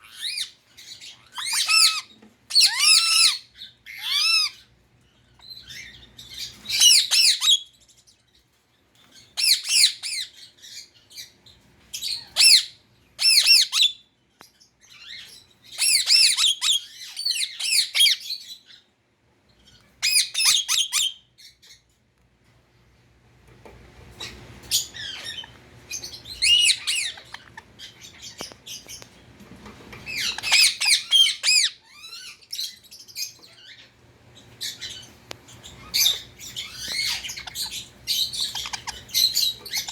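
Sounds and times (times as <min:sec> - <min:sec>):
parakeet squawking: 0:00.0 - 0:04.7, 0:05.4 - 0:07.8, 0:09.2 - 0:10.8, 0:12.0 - 0:14.0, 0:15.0 - 0:18.5, 0:19.7 - 0:21.3, 0:24.2 - 0:28.9, 0:30.0 - 0:33.9, 0:34.6 - 0:39.9.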